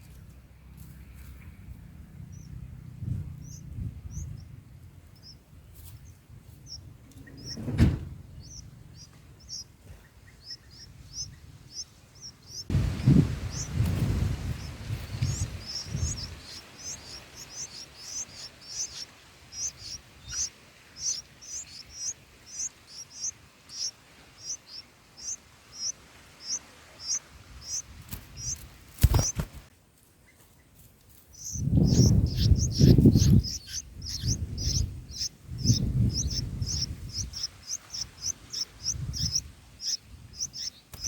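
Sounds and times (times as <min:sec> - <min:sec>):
nestlings begging cheeps: 0:03.4 - 0:04.5, 0:08.4 - 0:09.7, 0:10.4 - 0:29.5, 0:31.3 - 0:41.0
low rumbling thuds: 0:06.6 - 0:09.6, 0:12.7 - 0:18.8, 0:31.6 - 0:37.5.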